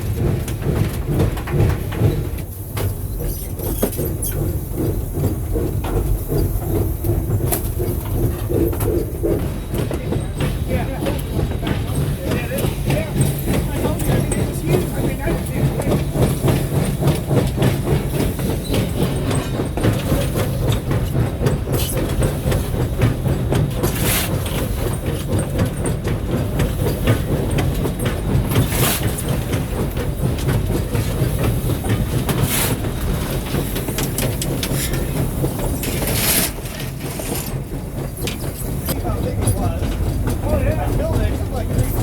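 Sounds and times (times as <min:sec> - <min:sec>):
steam locomotive rumble: 0:00.0 - 0:42.0
wheels clattering on rail: 0:00.0 - 0:42.0.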